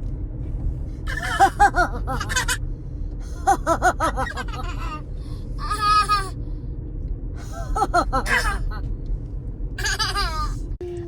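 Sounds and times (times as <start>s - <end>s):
young child laughing: 1.1s - 2.6s, 3.3s - 6.3s, 7.4s - 8.8s, 9.8s - 10.6s.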